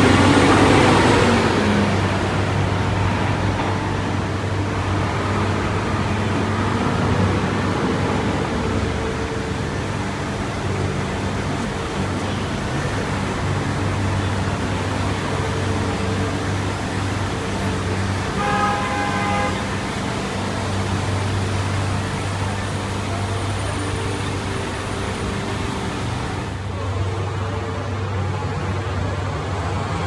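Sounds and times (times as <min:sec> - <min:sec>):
street traffic engine hum: 0:00.0 - 0:30.0
car horn: 0:18.2 - 0:20.2.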